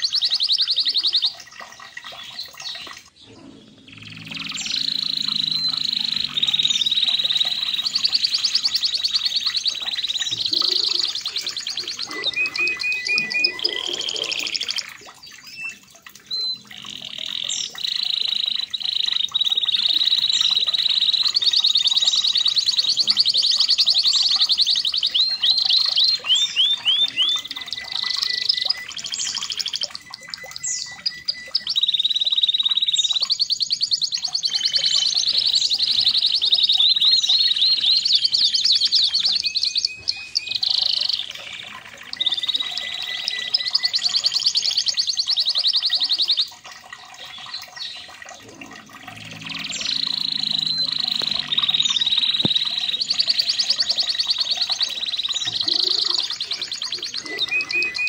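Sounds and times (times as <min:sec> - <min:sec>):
canary singing trills: 0:00.0 - 0:46.6, 0:47.2 - 0:58.0.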